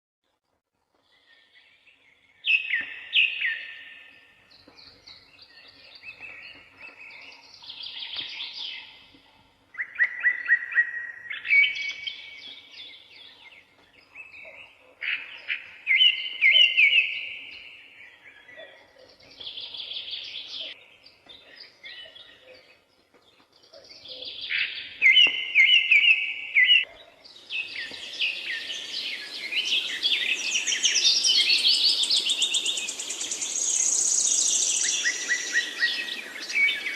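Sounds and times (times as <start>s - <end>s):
background hiss: 27.2s - 36.9s.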